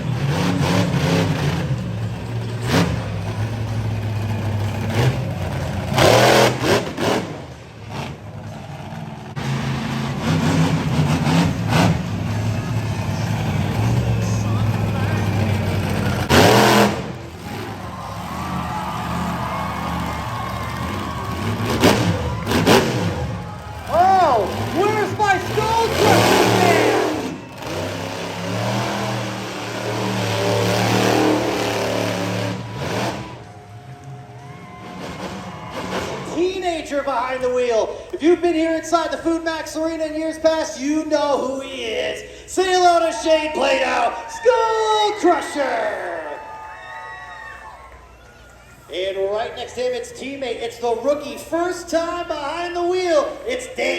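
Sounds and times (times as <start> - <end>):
monster truck engine revving: 0.0 - 36.9.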